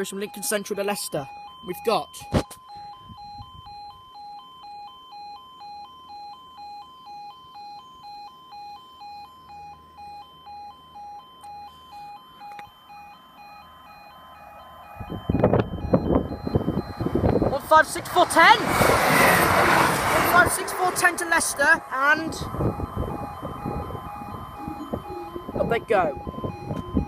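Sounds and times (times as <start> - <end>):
two-tone crossing alarm: 0.0 - 27.0
approaching train rumble: 21.8 - 27.0.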